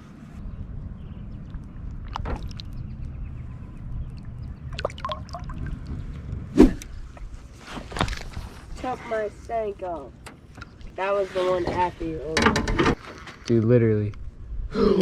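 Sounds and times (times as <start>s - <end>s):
boat engine hum: 0.0s - 7.4s.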